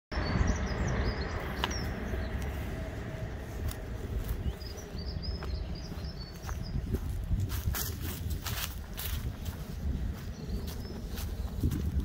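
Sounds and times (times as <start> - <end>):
low rumble: 0.1 - 12.0
small birds chirping: 0.1 - 12.0.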